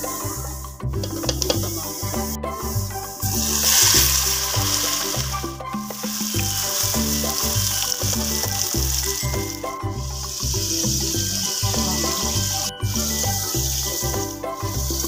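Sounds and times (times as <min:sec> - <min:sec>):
background music with bass line: 0:00.0 - 0:15.0
food sizzling in hot oil: 0:01.0 - 0:15.0.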